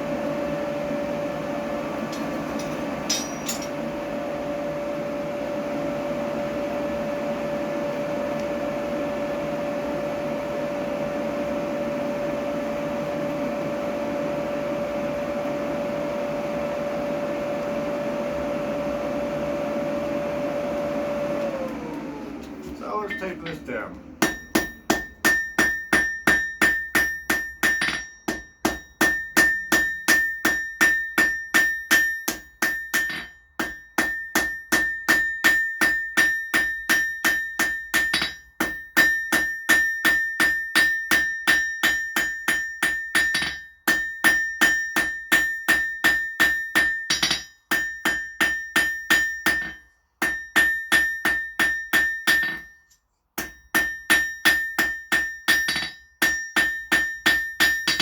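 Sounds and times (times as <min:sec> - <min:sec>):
hammer on steel on anvil: 0:02.1 - 0:03.8, 0:23.0 - 0:52.8, 0:53.4 - 0:58.0.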